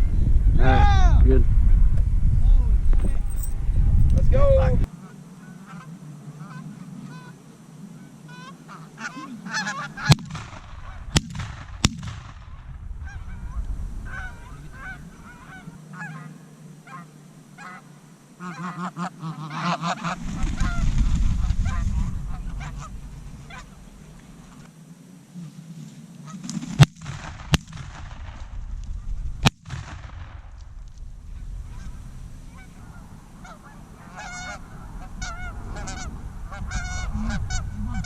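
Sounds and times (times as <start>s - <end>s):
low rumble: 0.0s - 4.9s, 10.0s - 15.8s, 20.2s - 24.6s, 27.2s - 38.0s
geese honking: 4.6s - 11.8s, 12.5s - 24.7s, 26.2s - 26.8s, 31.3s - 38.0s
sharp cracks: 9.8s - 15.5s, 26.4s - 32.8s.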